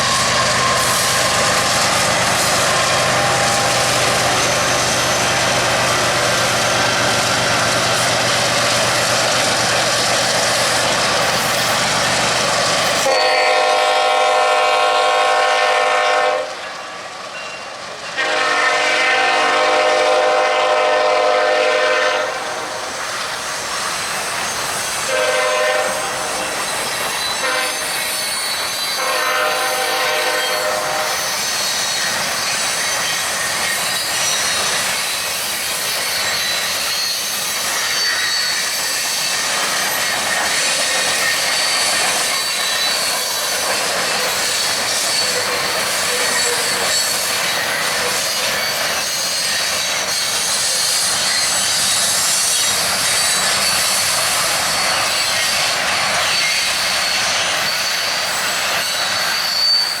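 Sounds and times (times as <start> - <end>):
high-pitched wheel squeal: 0.0 - 8.2, 23.8 - 60.0
freight train cars rumbling: 0.0 - 60.0.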